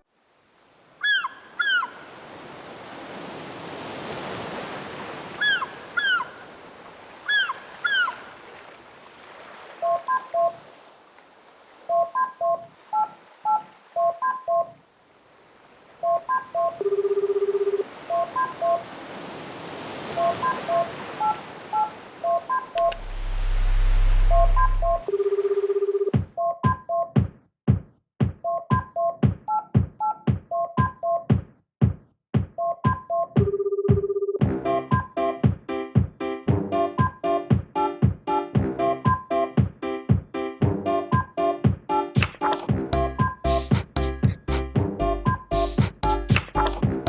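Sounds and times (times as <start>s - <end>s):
ocean waves: 0.0s - 26.1s
telephone keypad tones beeping: 11.9s - 14.7s, 16.0s - 18.8s, 20.2s - 23.0s, 24.2s - 27.1s, 32.6s - 34.4s
sharp clicks: 22.8s - 23.4s
steady tone: 22.8s - 25.1s.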